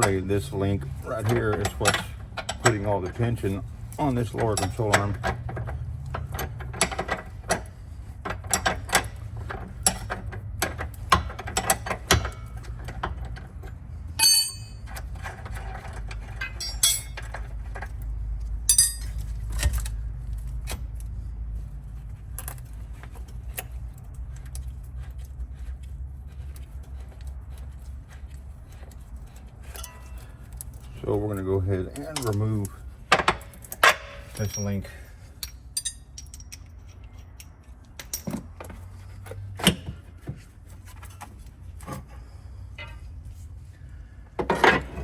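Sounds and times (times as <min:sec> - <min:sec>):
steady low hum: 0:00.0 - 0:45.0
ringing metal clanks: 0:01.2 - 0:03.5, 0:14.2 - 0:15.1, 0:16.4 - 0:17.3, 0:18.7 - 0:19.8, 0:29.7 - 0:30.8, 0:33.2 - 0:36.6, 0:42.8 - 0:43.1
hand tools clicking on metal: 0:14.2 - 0:17.9, 0:18.7 - 0:21.1, 0:22.4 - 0:38.4.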